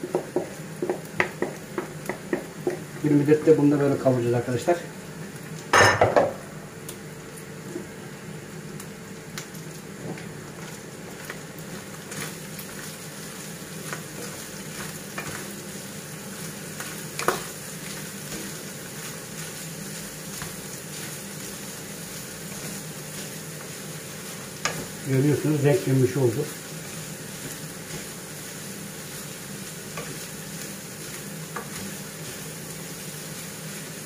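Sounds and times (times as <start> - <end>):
meat sizzling in a pan: 0.0 - 34.0.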